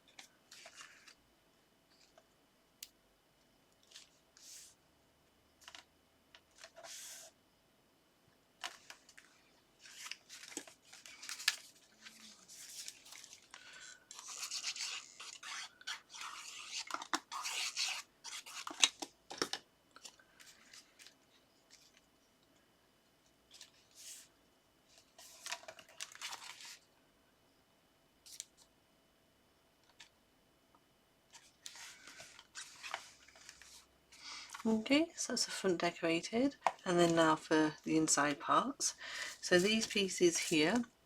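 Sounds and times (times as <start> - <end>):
paper rustling and scraping: 0.2 - 1.2, 6.5 - 7.3, 8.6 - 19.1, 24.9 - 26.8, 31.3 - 34.7.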